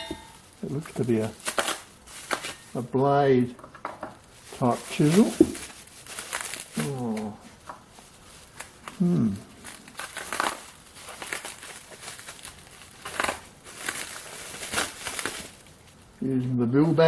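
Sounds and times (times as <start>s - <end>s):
plastic packaging crinkling: 0.0s - 2.9s, 3.6s - 16.2s
person exclaiming: 9.0s - 9.4s.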